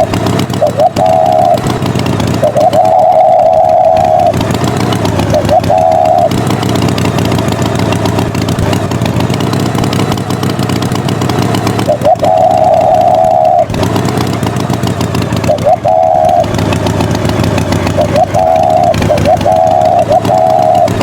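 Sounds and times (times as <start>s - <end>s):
tractor engine running: 0.0s - 21.0s
held horn-like tone: 0.7s - 1.7s, 5.4s - 6.6s, 12.0s - 13.8s, 15.6s - 16.6s, 18.1s - 21.0s.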